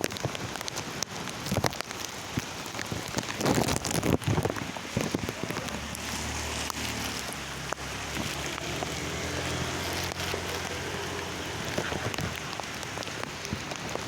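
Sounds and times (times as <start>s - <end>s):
raindrop taps: 0.0s - 14.0s
steady rain falling: 0.0s - 14.0s
low engine hum: 5.0s - 14.0s.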